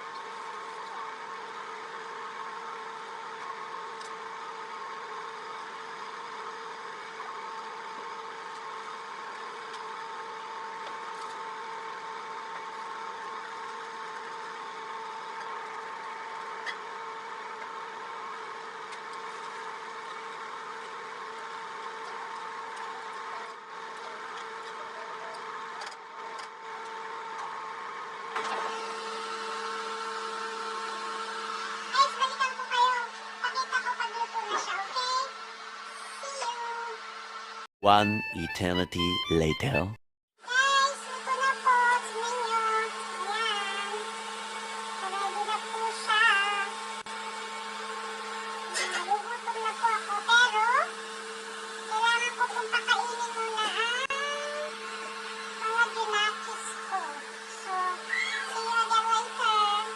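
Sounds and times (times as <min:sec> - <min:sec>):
small electric motor humming: 0:40.5 - 0:59.9.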